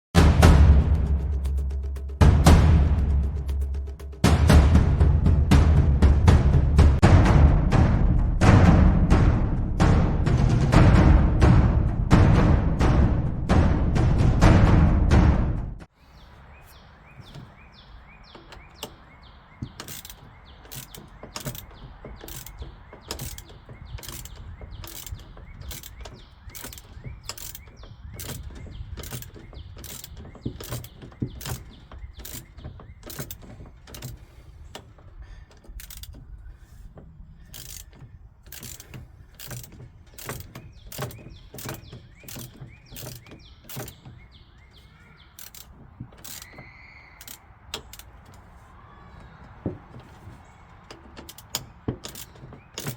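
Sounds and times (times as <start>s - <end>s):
hand tools clicking on metal: 18.3s - 48.5s, 49.6s - 52.9s.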